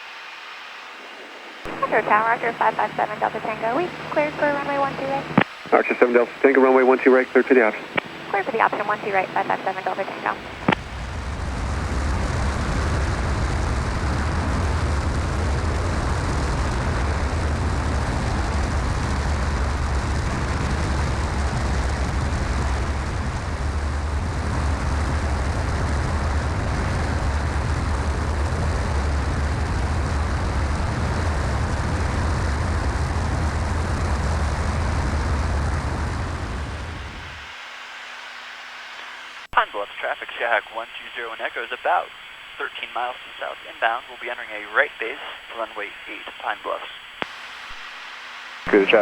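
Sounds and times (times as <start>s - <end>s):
airplane engine and propeller droning: 1.0s - 37.9s
rushing air noise: 10.4s - 39.5s.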